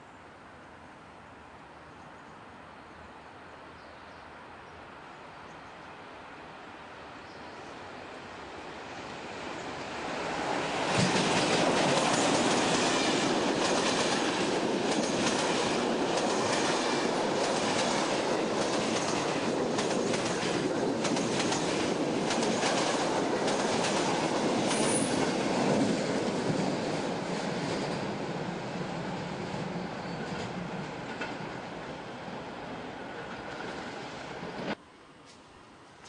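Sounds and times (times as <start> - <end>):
train wheels clacking over joints: 10.9 - 26.7.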